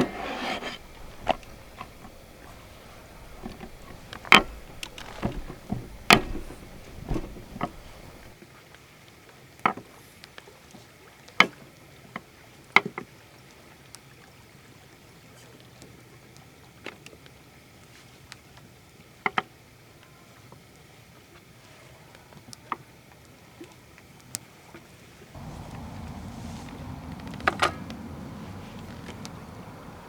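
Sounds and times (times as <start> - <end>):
sharp knocks and clatters: 0.0 - 8.4.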